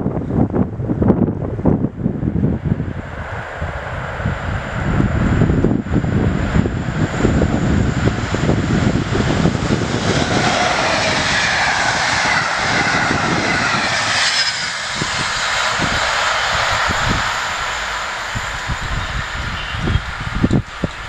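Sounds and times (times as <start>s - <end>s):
train passing with heavy rumble: 0.0s - 21.0s
wheels rushing on rails: 0.4s - 21.0s
faint falling whine: 6.6s - 21.0s.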